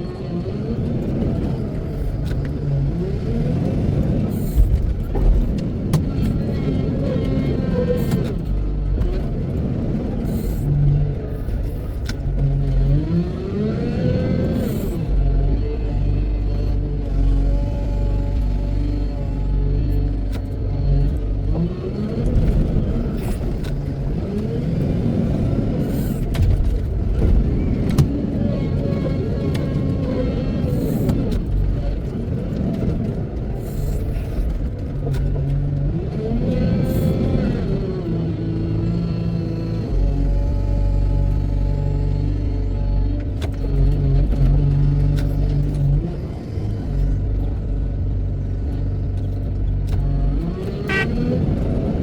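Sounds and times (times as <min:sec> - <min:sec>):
diesel engine revving: 0:00.0 - 0:52.0
heavy diesel engine revving: 0:35.3 - 0:52.0.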